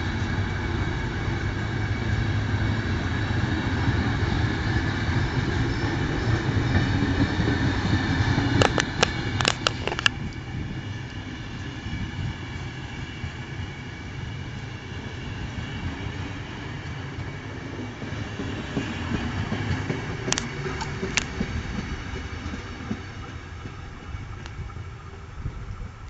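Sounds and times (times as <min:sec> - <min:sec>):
train wheels rumbling on rails: 0:00.0 - 0:26.0
sharp clicks: 0:08.6 - 0:10.1.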